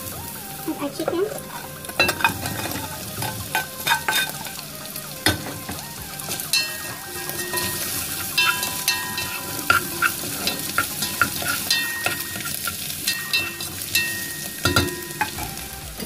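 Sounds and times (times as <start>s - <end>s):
chicken sizzling in a pot: 0.0s - 16.0s
utensil scraping a pot: 1.0s - 4.6s, 7.3s - 15.4s.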